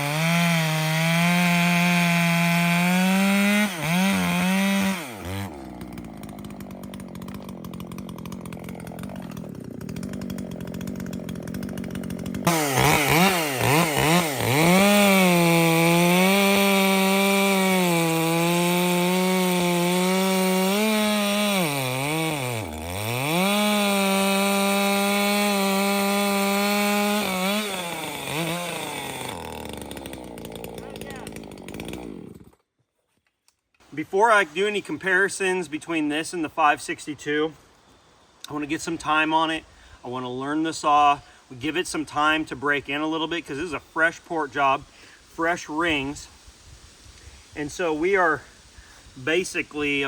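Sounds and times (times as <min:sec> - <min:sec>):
chainsaw cutting wood: 0:00.0 - 0:32.7.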